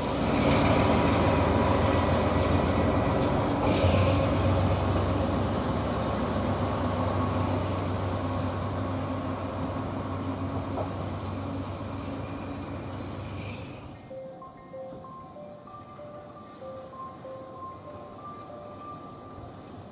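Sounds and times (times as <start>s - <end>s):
train running on rails: 0.0s - 19.9s.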